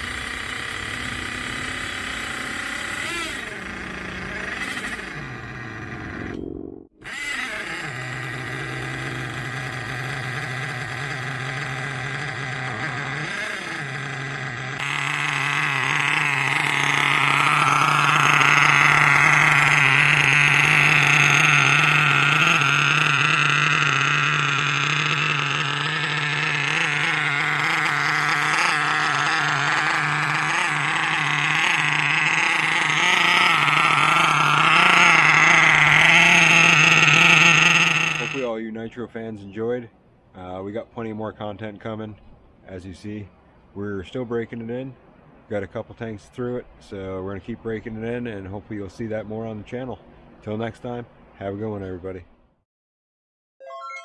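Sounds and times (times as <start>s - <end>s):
small engine buzzing: 0.0s - 38.5s.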